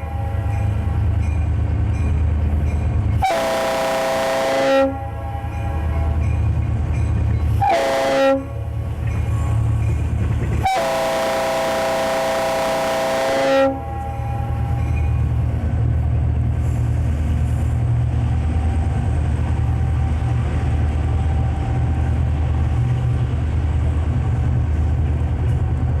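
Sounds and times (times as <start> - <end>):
locomotive chime air horn: 0.0 - 1.1, 3.2 - 6.5, 7.6 - 9.6, 10.6 - 15.2.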